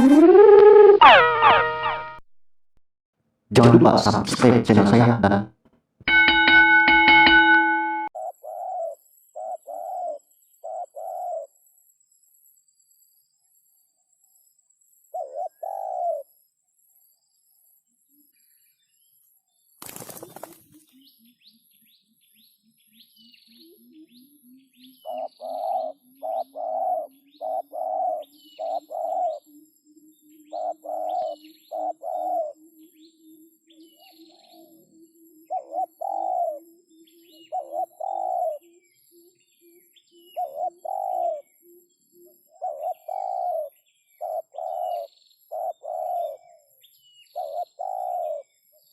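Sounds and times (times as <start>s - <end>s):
doves cooing: 8.2s - 11.5s, 15.2s - 16.2s, 25.0s - 29.5s, 30.6s - 32.6s, 35.5s - 36.6s, 37.5s - 38.6s, 40.4s - 41.5s, 42.6s - 46.6s, 47.4s - 48.4s.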